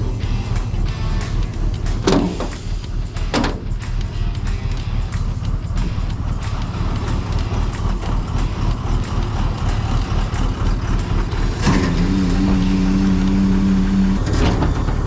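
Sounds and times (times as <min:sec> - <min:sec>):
steady pitched whine: 0:00.0 - 0:15.0
truck engine running: 0:00.0 - 0:15.0.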